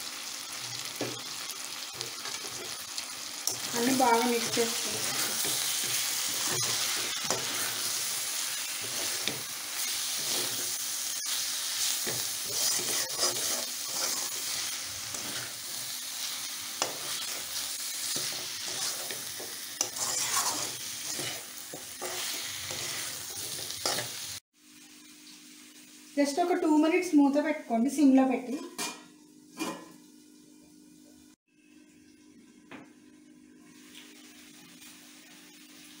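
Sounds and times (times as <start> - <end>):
chicken sizzling in oil: 0.0 - 27.4
metal spatula scraping a wok: 3.5 - 24.3.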